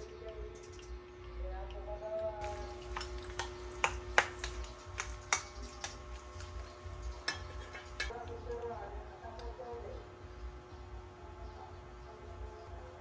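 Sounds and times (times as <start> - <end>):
faint hum: 0.0 - 13.0
kitchen utensils tapping: 2.4 - 8.2.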